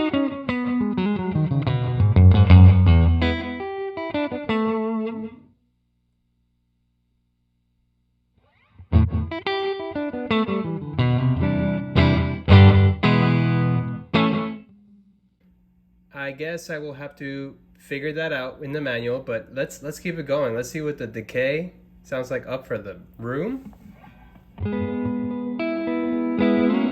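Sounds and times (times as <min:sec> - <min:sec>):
electric guitar with reverb: 0:00.0 - 0:05.4, 0:08.4 - 0:15.1, 0:24.6 - 0:26.9.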